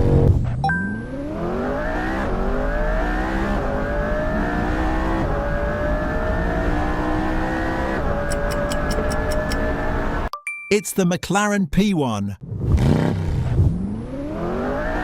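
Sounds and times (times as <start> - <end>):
car engine accelerating: 0.0 - 10.2, 12.7 - 15.0
quick ticks: 8.3 - 9.7.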